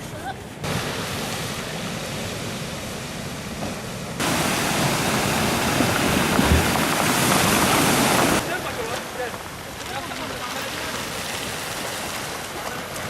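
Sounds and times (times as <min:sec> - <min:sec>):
sea surf rushing: 0:00.4 - 0:13.0
wind on microphone: 0:04.4 - 0:08.4.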